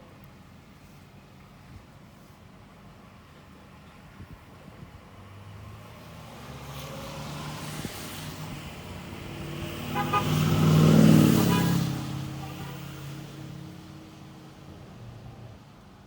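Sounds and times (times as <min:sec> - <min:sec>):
car passing by: 0:05.2 - 0:15.4.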